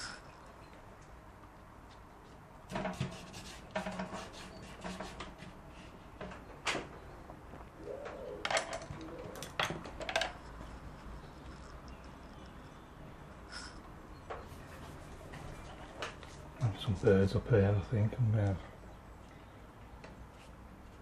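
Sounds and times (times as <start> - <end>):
paintbrush strokes on paper: 2.7 - 6.0.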